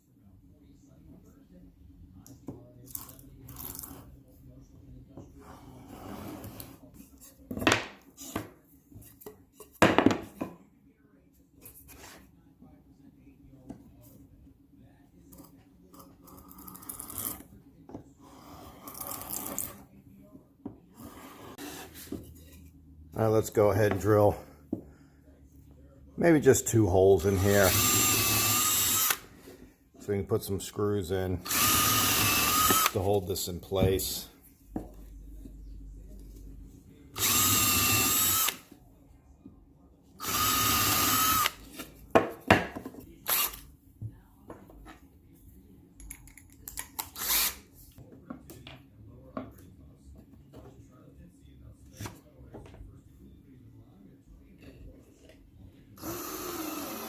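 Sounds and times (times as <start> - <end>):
power drill drilling into wood: 27.3 - 29.2, 31.4 - 33.0, 37.2 - 38.6, 40.2 - 41.6, 56.0 - 57.0.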